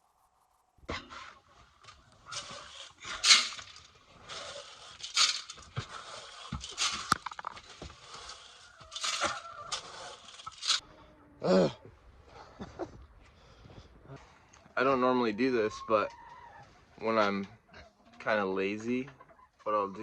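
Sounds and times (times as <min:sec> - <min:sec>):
scraping and crunching: 0:00.8 - 0:10.8.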